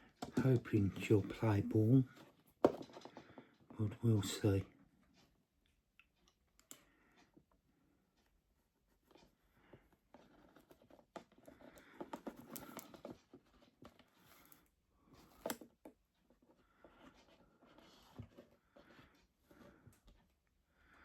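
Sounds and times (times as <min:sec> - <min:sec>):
faint scraping and rustling: 0:08.6 - 0:21.0.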